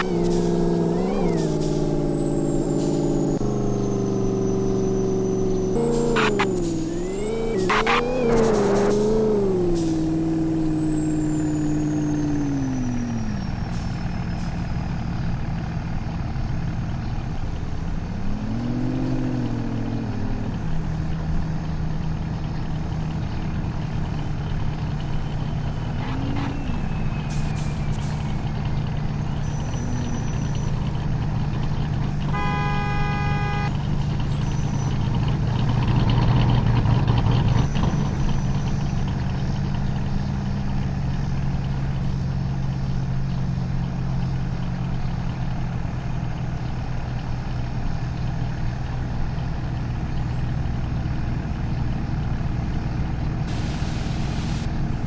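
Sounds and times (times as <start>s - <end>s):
truck engine running: 0.0s - 55.0s
short horn toot: 32.3s - 33.8s.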